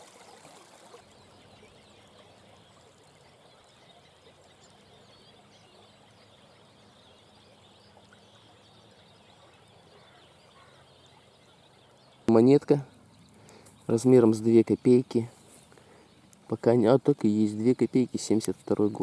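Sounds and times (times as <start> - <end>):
songbirds chirping: 0.0 - 19.0
frogs croaking: 1.3 - 12.3.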